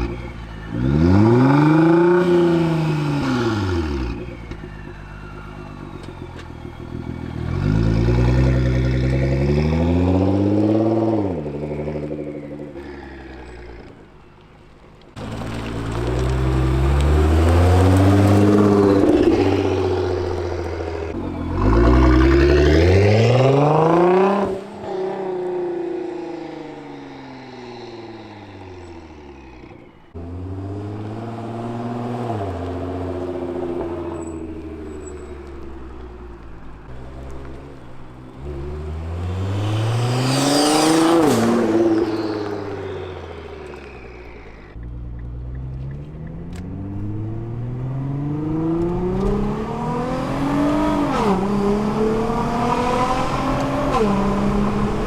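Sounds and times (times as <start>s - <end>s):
sports car engine accelerating hard: 15.2s - 55.0s.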